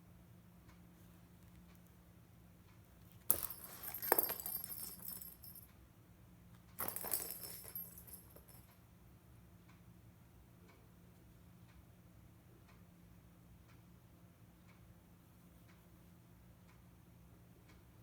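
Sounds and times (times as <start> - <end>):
cat toy jangling: 3.3 - 5.6, 6.8 - 8.7.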